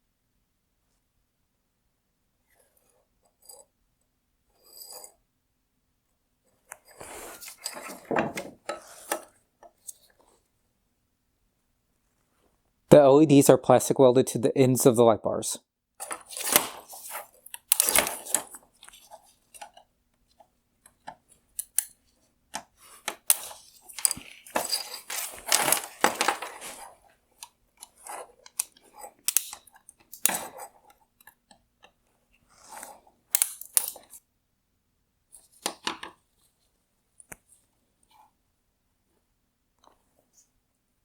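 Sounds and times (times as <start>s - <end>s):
hard plastic crunching and snapping: 16.1s - 18.4s, 23.1s - 26.8s.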